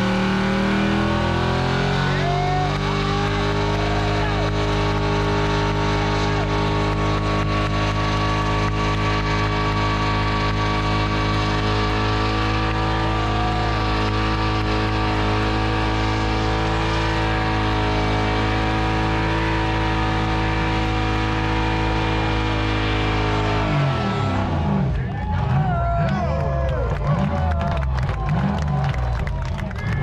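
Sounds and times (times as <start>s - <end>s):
engine humming steadily: 0.0s - 30.0s.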